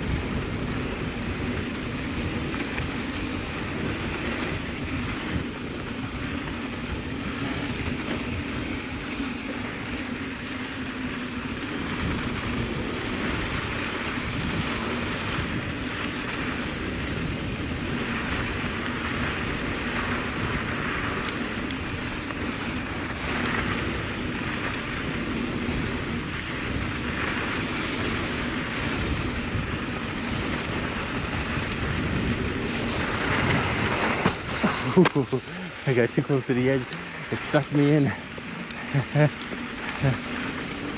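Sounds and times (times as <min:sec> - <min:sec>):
wind on microphone: 0:00.0 - 0:09.5, 0:23.4 - 0:40.9
bike rattling: 0:00.0 - 0:40.9
tyres on dirt and rock: 0:26.2 - 0:40.9.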